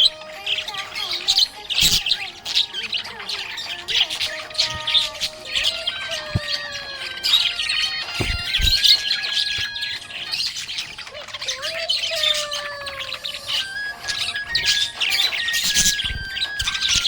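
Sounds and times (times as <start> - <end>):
budgerigars chirping and chattering: 0.0 - 17.0
soft low thumps: 8.0 - 9.0.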